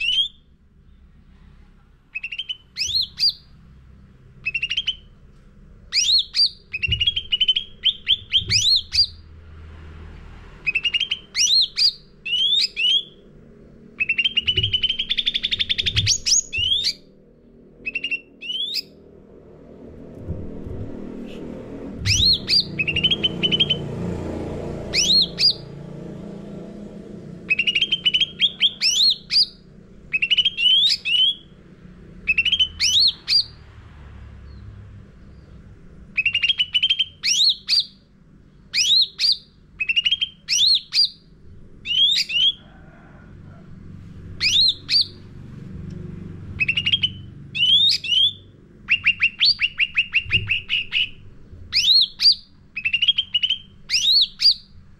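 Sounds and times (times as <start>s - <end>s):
bird singing whistles and chirps: 0.0s - 0.4s, 2.2s - 3.5s, 4.4s - 5.1s, 5.9s - 9.2s, 10.6s - 13.2s, 14.0s - 17.1s, 17.8s - 19.0s, 22.0s - 23.8s, 24.9s - 25.6s, 27.5s - 31.5s, 32.3s - 33.6s, 36.2s - 38.0s, 38.7s - 41.2s, 41.8s - 42.6s, 44.4s - 45.2s, 46.6s - 54.7s
faint low rumble: 0.0s - 54.9s.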